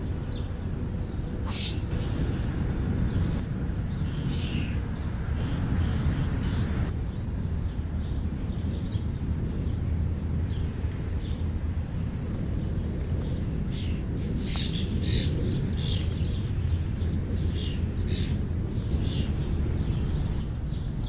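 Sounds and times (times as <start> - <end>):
steady low rumble: 0.0 - 21.0
bird chirps and calls: 0.3 - 9.0.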